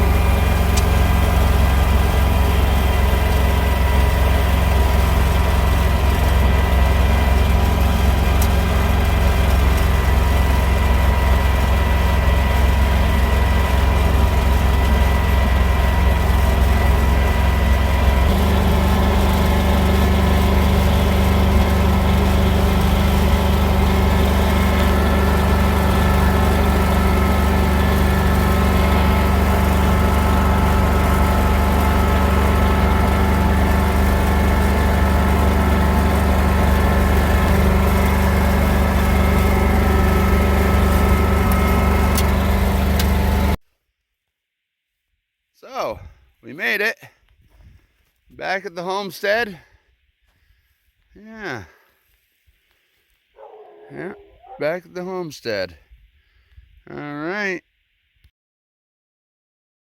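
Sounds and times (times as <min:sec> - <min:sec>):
tractor engine droning: 0:00.0 - 0:43.6, 0:53.4 - 0:55.4.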